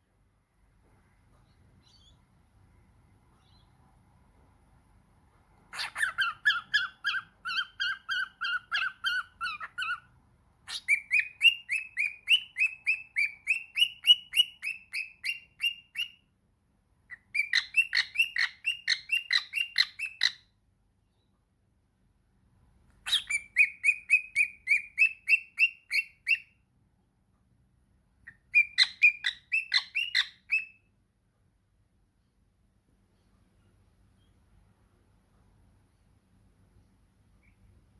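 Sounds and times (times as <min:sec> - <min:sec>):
parrot squawking: 0:05.7 - 0:10.1, 0:10.7 - 0:16.2, 0:17.1 - 0:20.5, 0:23.0 - 0:26.5, 0:28.3 - 0:30.8.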